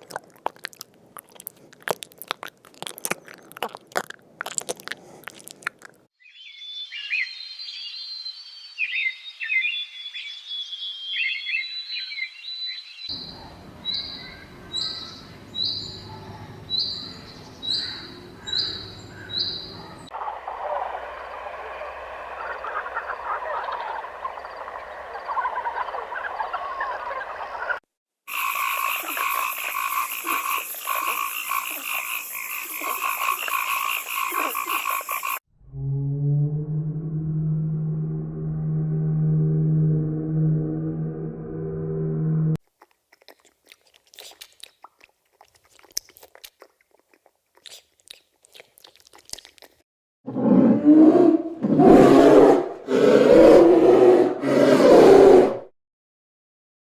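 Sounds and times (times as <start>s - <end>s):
frogs calling: 13.1s - 35.4s.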